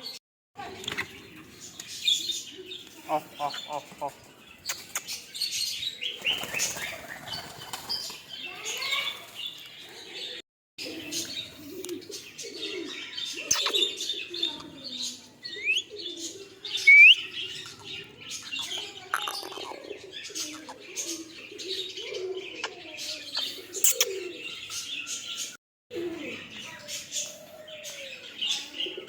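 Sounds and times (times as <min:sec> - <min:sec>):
small birds chirping: 0:00.0 - 0:29.0
pigeons cooing: 0:10.1 - 0:29.0
short rising whistled calls: 0:16.8 - 0:17.3.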